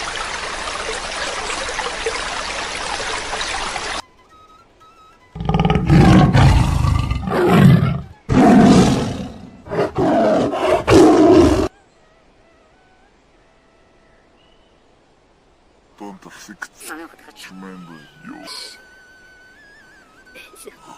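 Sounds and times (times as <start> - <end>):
big cat roaring and growling: 5.4 - 11.7.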